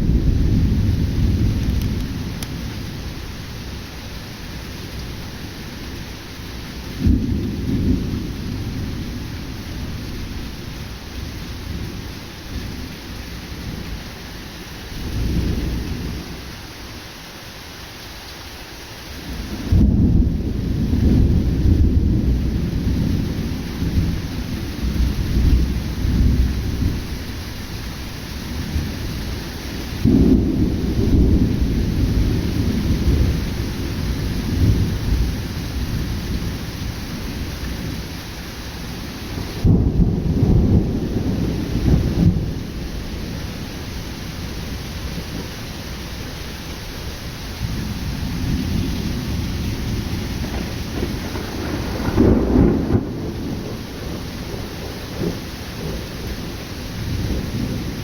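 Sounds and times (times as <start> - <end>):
thunder rumbling: 0.0 - 3.8, 19.3 - 38.2, 38.9 - 58.0
heavy rain: 0.0 - 58.0.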